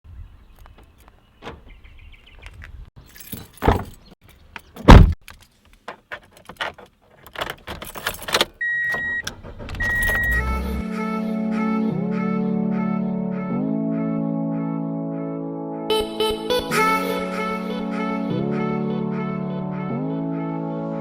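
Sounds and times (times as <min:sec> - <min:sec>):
clicks knocks and jangling: 0:00.6 - 0:10.4
loud thump: 0:04.9 - 0:05.2
electronic beeps: 0:09.8 - 0:10.6
music: 0:10.5 - 0:21.0.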